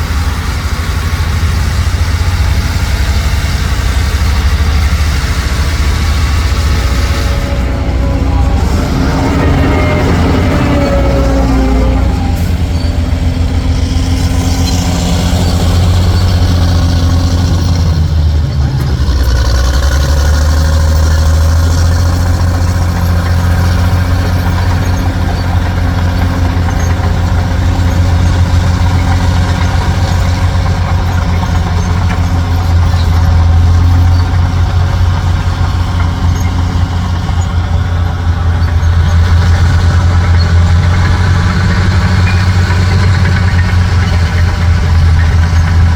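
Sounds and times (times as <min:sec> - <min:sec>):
diesel truck engine humming: 0:00.0 - 0:45.9.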